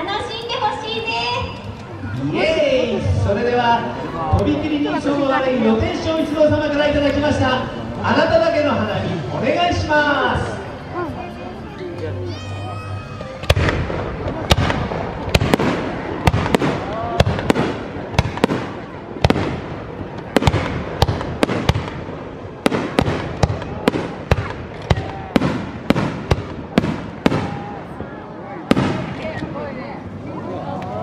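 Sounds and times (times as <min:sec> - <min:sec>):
fireworks bangs: 0:13.4 - 0:28.0, 0:28.6 - 0:29.6.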